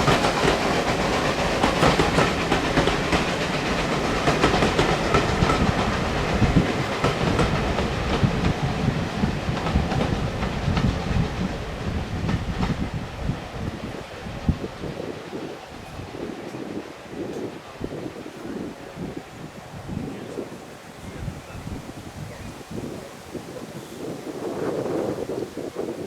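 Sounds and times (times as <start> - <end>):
train wheels clattering over rail joints: 0.0 - 15.0.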